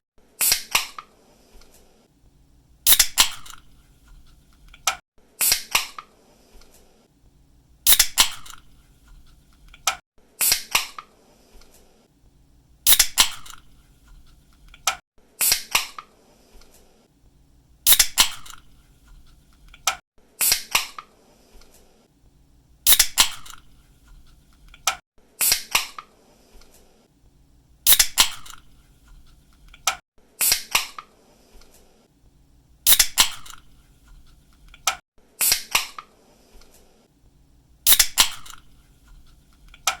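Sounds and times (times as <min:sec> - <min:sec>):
drink can snapping open with hiss: 0:02.9 - 0:03.6, 0:07.9 - 0:08.6, 0:12.9 - 0:13.6, 0:17.9 - 0:18.6, 0:22.9 - 0:23.6, 0:27.9 - 0:28.6, 0:32.9 - 0:33.6, 0:37.9 - 0:38.6.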